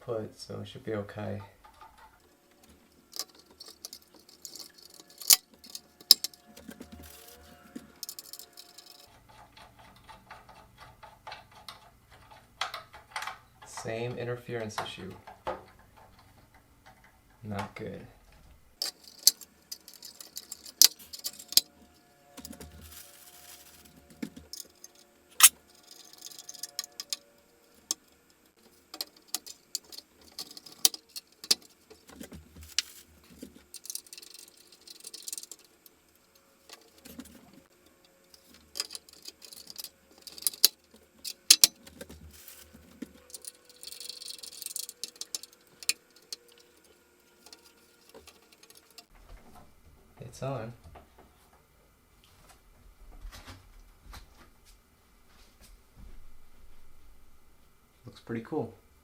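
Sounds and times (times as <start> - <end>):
plastic fan blades clicking and rattling: 1.6 - 17.6, 18.8 - 49.6.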